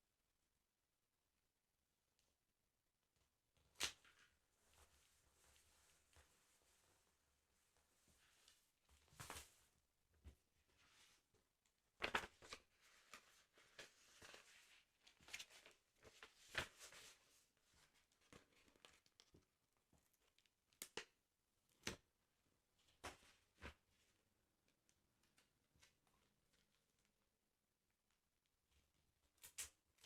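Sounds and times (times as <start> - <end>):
paper rustling and crinkling: 12.0 - 19.4.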